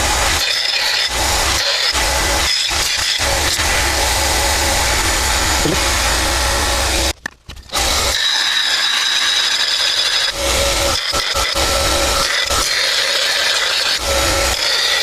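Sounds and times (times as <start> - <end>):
power tool running under load: 0.0 - 15.0.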